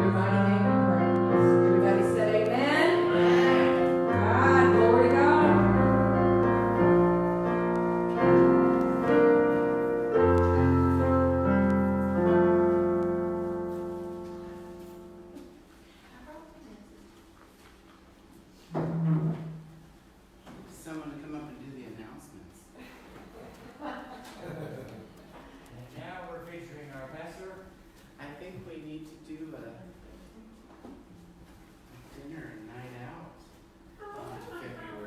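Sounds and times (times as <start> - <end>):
person singing: 0.0 - 6.3
piano chords: 0.0 - 15.7.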